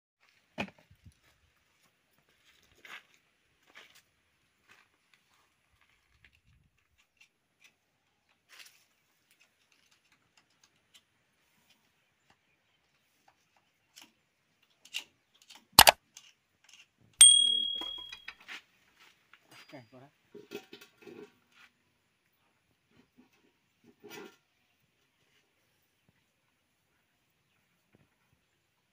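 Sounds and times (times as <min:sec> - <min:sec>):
metal object ringing: 0:17.2 - 0:18.3.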